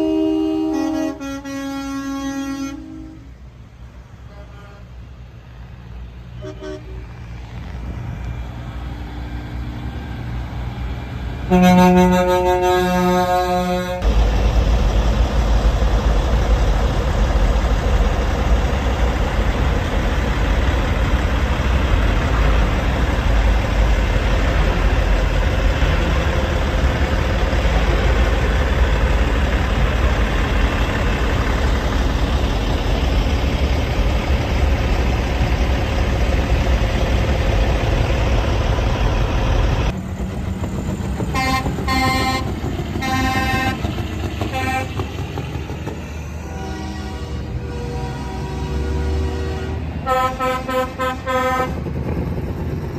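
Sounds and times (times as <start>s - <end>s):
truck horn short toots: 0.0s - 3.3s, 4.3s - 5.0s, 6.4s - 7.0s, 11.5s - 14.0s, 41.4s - 43.8s, 44.5s - 45.0s, 46.4s - 51.8s
heavy truck engine rumbling: 0.0s - 52.9s.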